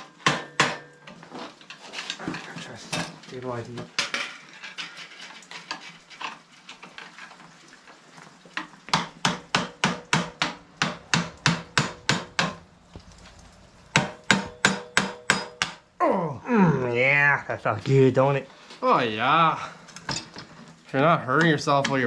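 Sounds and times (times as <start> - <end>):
hammer striking metal: 0.1 - 1.0, 8.9 - 12.6, 13.9 - 15.8
light scraping and clicking: 1.1 - 7.5.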